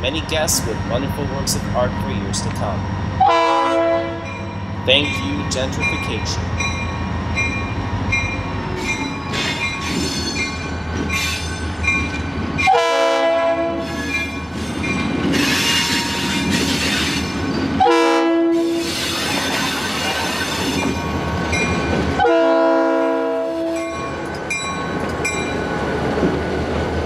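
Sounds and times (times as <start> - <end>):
diesel locomotive rumbling: 0.0 - 27.0
locomotive air horn blasts: 3.2 - 4.3, 12.7 - 13.9, 17.8 - 19.0, 22.2 - 23.8
bell ringing: 4.3 - 10.7.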